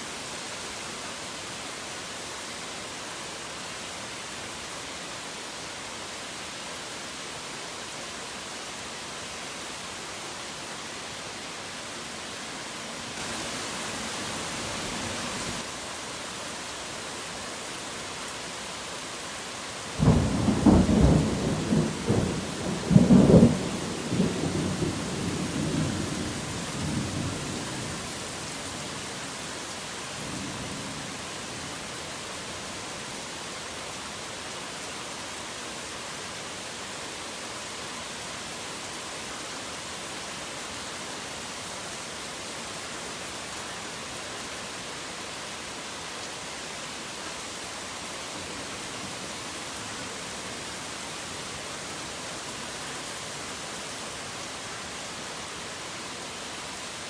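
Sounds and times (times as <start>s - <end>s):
heavy rain hiss: 0.0s - 57.0s.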